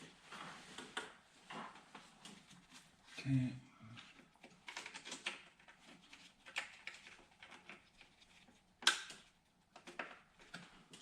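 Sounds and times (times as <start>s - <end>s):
plastic parts clicking and rattling: 4.0s - 11.0s
sharp plastic snap: 8.8s - 9.2s.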